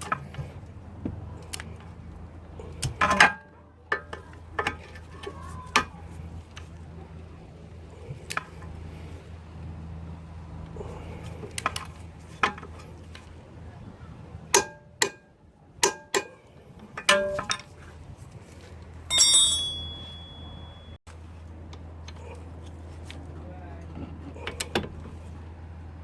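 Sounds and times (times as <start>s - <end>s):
metal tools clinking and knocking: 17.0s - 17.7s, 19.1s - 21.0s
ringing metallic clang: 17.1s - 17.6s, 19.1s - 21.0s.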